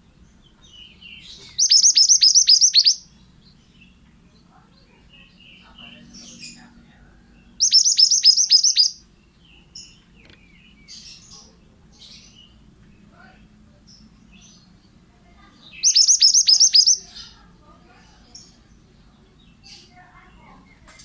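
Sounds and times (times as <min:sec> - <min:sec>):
faint bird chirps: 0:00.0 - 0:20.9
bird singing sharp high notes: 0:01.2 - 0:03.0, 0:07.6 - 0:09.0, 0:15.7 - 0:17.1.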